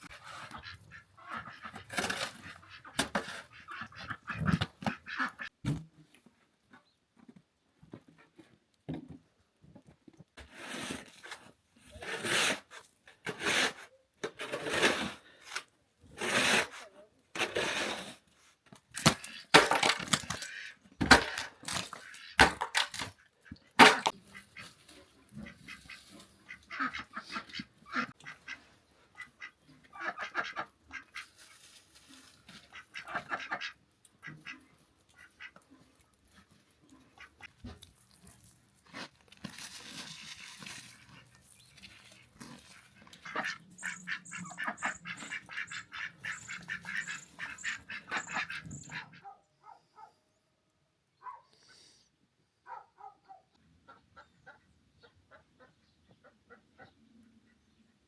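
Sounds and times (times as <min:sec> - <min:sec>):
fowl calling harshly: 0:25.4 - 0:28.6, 0:29.2 - 0:31.4, 0:32.7 - 0:34.6, 0:43.2 - 0:49.3.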